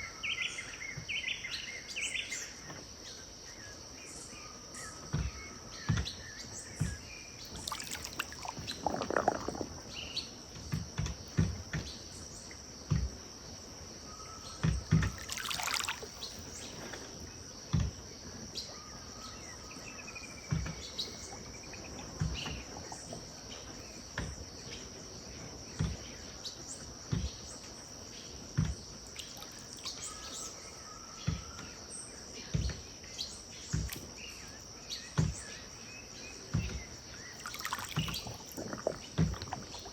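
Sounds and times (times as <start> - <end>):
water lapping at bank: 6.8 - 11.5, 14.6 - 17.3, 20.4 - 24.4, 28.6 - 31.4, 33.7 - 34.3, 36.6 - 39.9
high insect drone: 7.4 - 10.5, 28.8 - 30.8, 37.1 - 39.9
whistled bird calls: 29.2 - 31.7.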